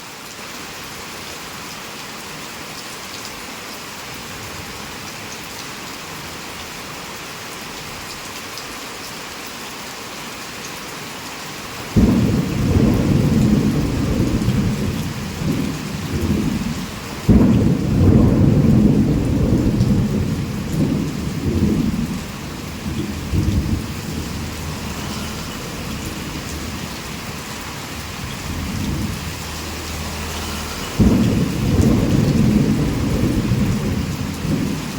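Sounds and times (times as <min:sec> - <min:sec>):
heavy rain pouring: 0:00.0 - 0:34.9
rolling thunder: 0:12.0 - 0:34.9.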